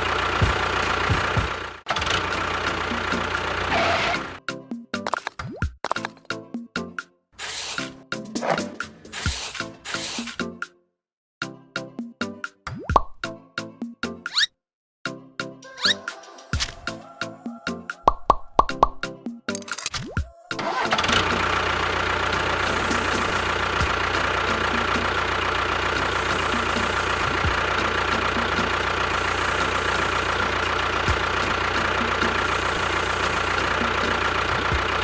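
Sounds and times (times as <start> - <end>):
small motor whining: 20.6 - 24.3, 26.0 - 28.0, 29.1 - 34.9.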